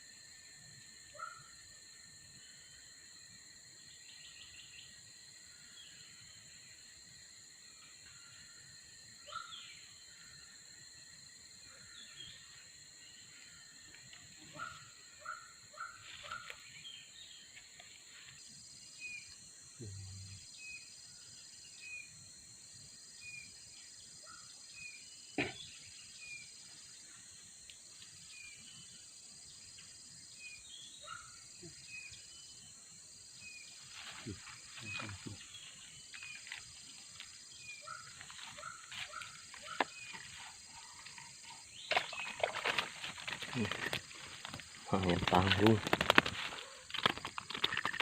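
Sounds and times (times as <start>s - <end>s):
high-pitched insect drone: 0.0s - 48.0s
rustles and knocks: 41.9s - 48.0s.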